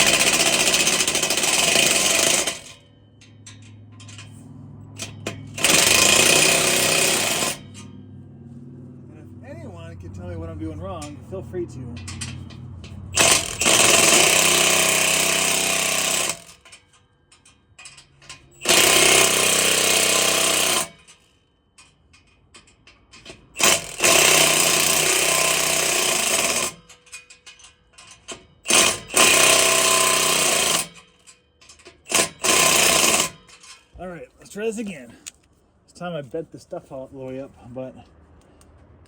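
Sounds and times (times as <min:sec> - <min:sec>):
power tool running: 0:00.0 - 0:02.8, 0:05.0 - 0:07.7, 0:13.1 - 0:16.6, 0:18.6 - 0:21.0, 0:23.6 - 0:26.8, 0:28.7 - 0:31.0, 0:32.1 - 0:33.4.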